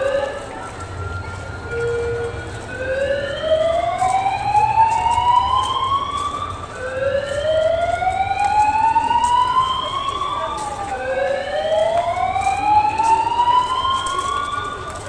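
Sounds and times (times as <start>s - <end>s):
wailing sirens: 0.0s - 15.0s.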